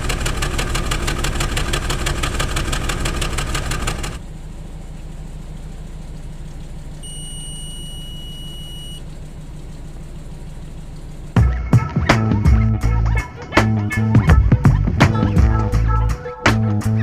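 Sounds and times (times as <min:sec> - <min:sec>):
car engine idling with misfire: 0:00.0 - 0:16.4
high-pitched electronic beep: 0:07.0 - 0:09.0
music: 0:11.4 - 0:17.0.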